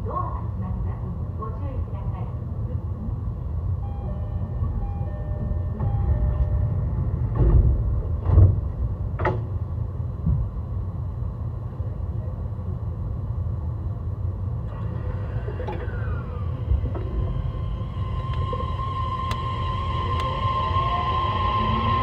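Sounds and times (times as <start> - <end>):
train running rumble: 0.0 - 22.0
train thumps: 5.8 - 10.7
faint falling inverter whine: 16.2 - 22.0.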